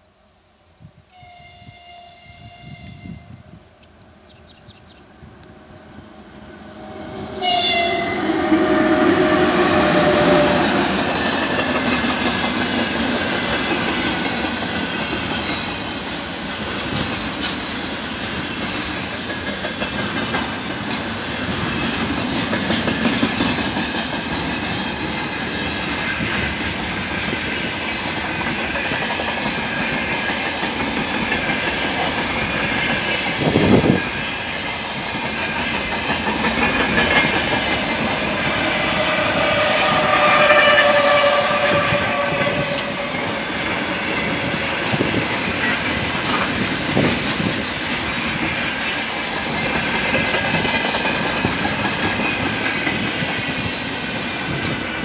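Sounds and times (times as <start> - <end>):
freight train passing: 0.0 - 55.0
locomotive horn: 1.1 - 3.6, 6.8 - 10.6, 38.4 - 43.4
wheels clacking over rail joints: 9.8 - 34.0, 35.0 - 39.0, 42.7 - 55.0.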